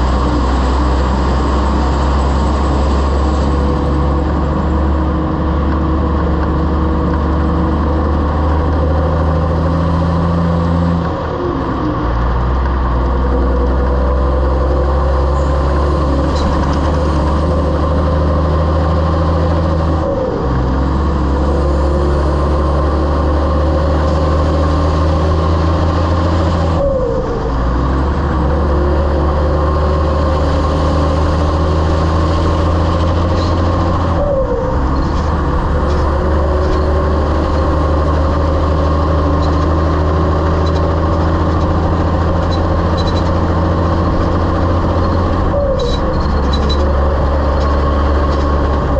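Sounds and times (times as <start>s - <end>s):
diesel truck engine under load: 0.0s - 48.9s.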